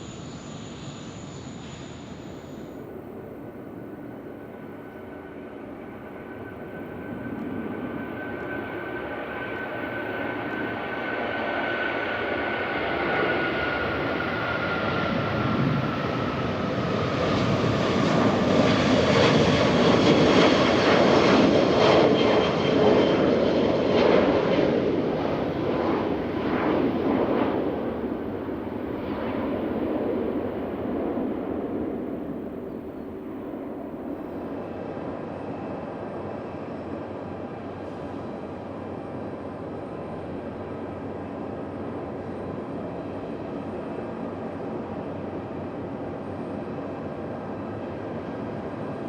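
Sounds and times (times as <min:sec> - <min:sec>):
jet airliner taking off: 0:00.0 - 0:49.0
jet engine whine: 0:00.0 - 0:49.0.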